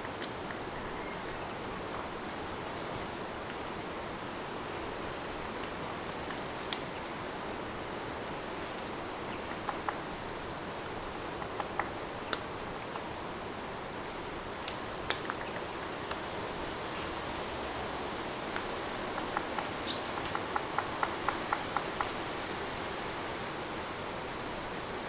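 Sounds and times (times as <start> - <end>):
steady rain: 1.4 - 25.0.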